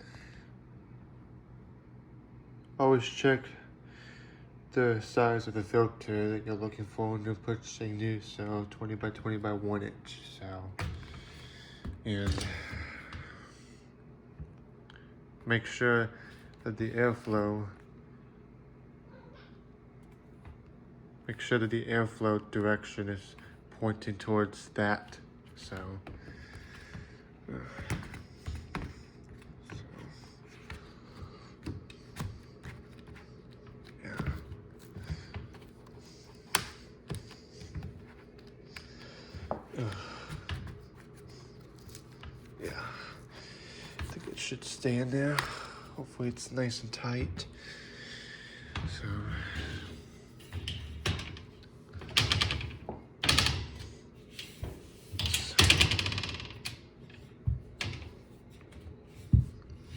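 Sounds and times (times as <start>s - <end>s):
furnace filter knocks and clicks: 25.5s - 42.5s, 48.7s - 59.9s.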